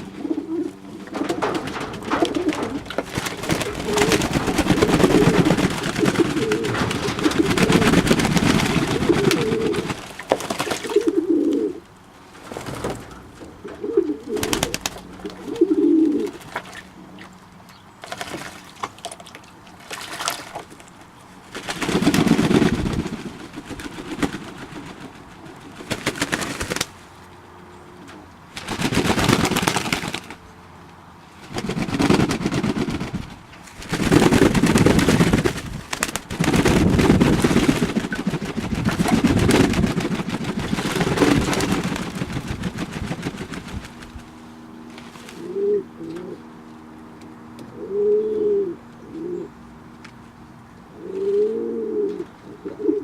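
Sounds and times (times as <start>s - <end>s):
pigeons cooing: 0.0s - 11.9s, 12.7s - 17.2s, 40.8s - 42.1s, 45.4s - 46.6s, 47.6s - 49.6s, 50.9s - 53.0s.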